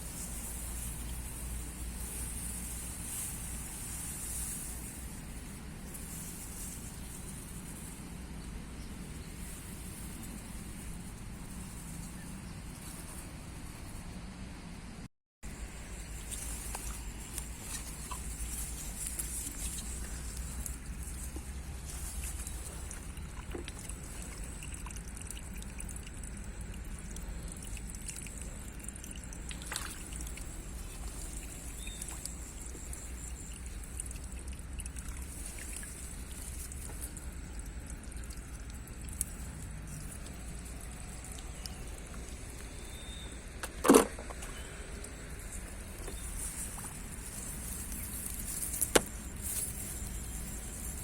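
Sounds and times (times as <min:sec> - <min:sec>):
shallow water trickling and sloshing: 0:00.0 - 0:14.0, 0:15.5 - 0:51.0
sharp splash: 0:29.5 - 0:30.4.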